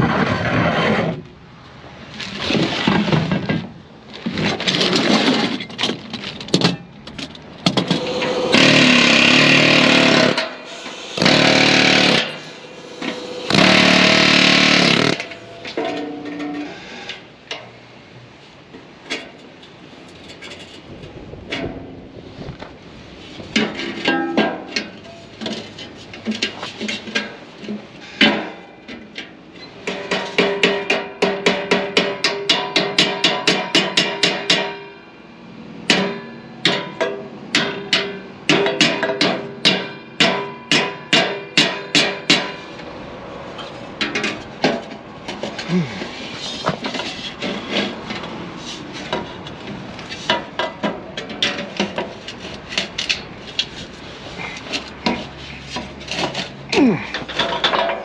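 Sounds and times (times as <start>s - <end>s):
hammer strikes on metal: 7.7s - 16.6s, 29.9s - 35.0s, 35.9s - 42.6s.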